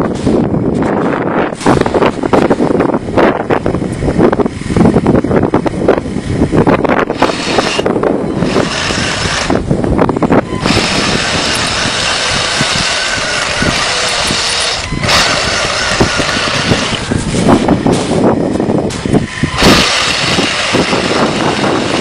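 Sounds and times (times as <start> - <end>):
high motor whine: 0.0 - 22.0
toy tank motors running: 7.0 - 9.7, 10.6 - 17.4, 19.3 - 22.0.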